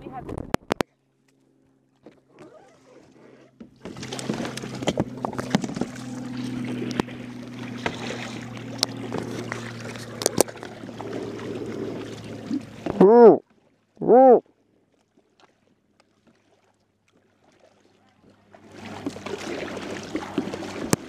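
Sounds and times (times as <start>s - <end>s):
steady low hum: 0.0s - 13.4s
paddles splashing water: 1.3s - 21.0s.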